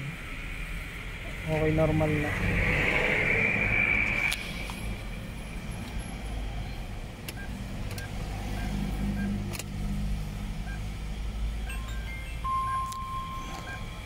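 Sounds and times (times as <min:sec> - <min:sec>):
faint short beeps: 0:11.7 - 0:14.0.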